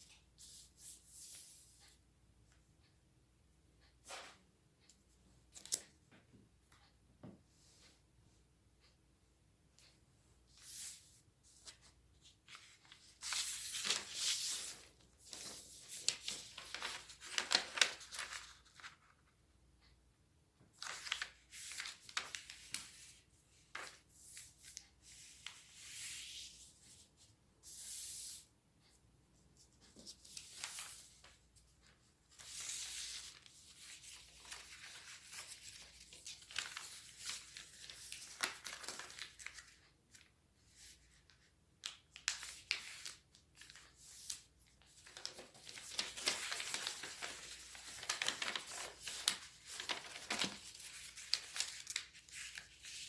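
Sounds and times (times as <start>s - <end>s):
paper being folded and creased: 10.6s - 19.3s, 20.8s - 23.2s, 29.8s - 53.0s.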